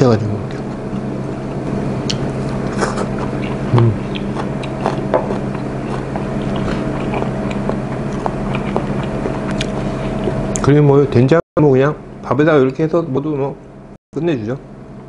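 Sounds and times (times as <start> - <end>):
low hum: 0.0 - 15.0
man chewing food: 0.5 - 10.6.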